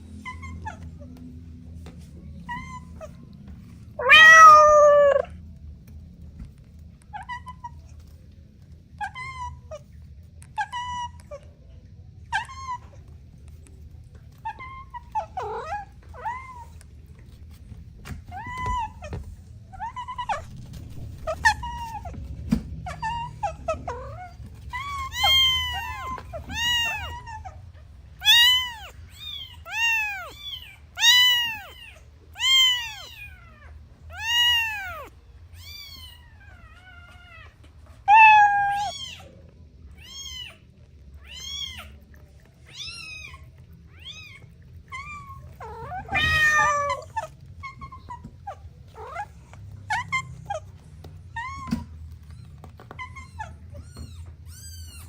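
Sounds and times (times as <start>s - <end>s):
kittens meowing: 3.9s - 5.4s, 13.7s - 17.3s, 18.2s - 55.0s.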